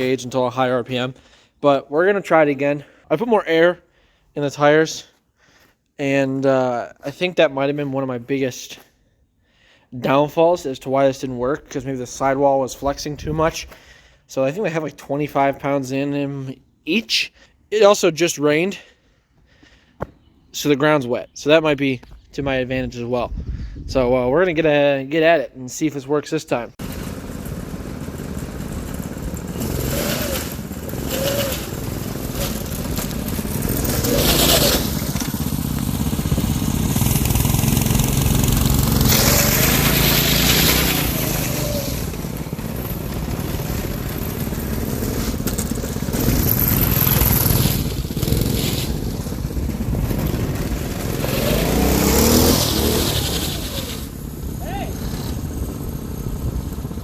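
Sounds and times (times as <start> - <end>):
go-kart engines revving: 26.8 - 57.0.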